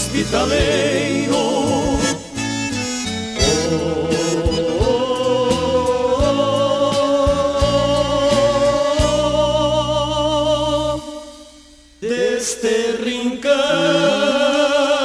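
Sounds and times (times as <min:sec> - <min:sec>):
band bass: 0:00.0 - 0:12.0
voices singing with vibrato: 0:00.0 - 0:15.0.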